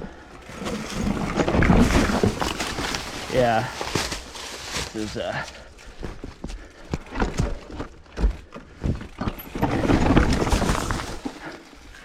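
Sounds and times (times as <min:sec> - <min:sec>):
bike knocks and clunks: 0:06.0 - 0:11.5.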